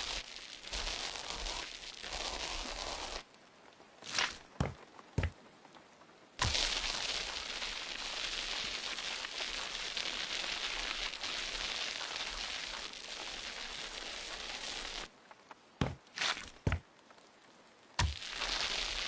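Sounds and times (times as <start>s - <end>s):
steady hiss: 18.0s - 19.0s.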